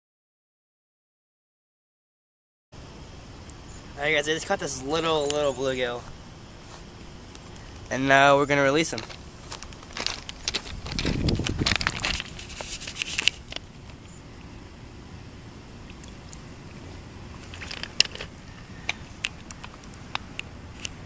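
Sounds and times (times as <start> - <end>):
microphone handling rustling: 8.9 - 14.0.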